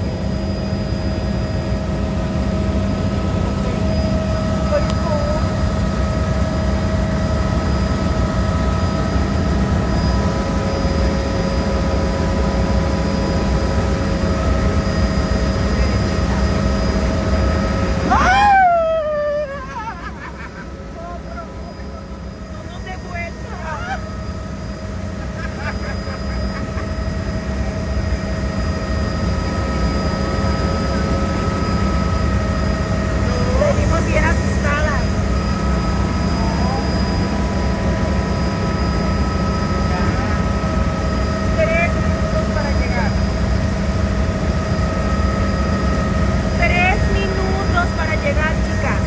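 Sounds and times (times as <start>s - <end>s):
helicopter engine and rotor drone: 0.0s - 49.0s
whining tones: 2.9s - 49.0s.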